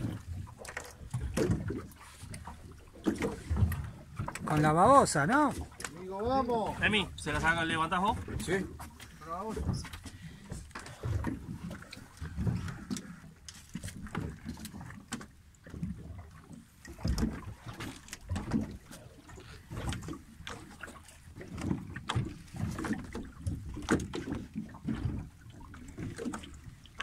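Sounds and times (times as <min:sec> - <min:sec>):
water lapping against boat hull: 0:00.0 - 0:27.0.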